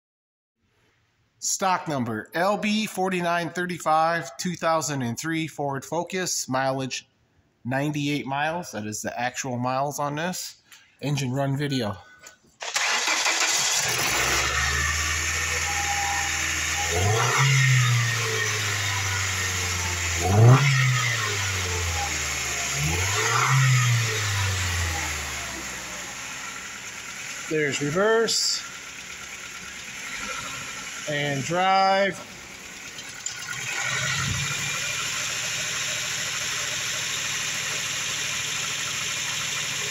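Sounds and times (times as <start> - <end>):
car engine starting and idling: 12.6 - 39.9
car engine revving: 12.8 - 39.9.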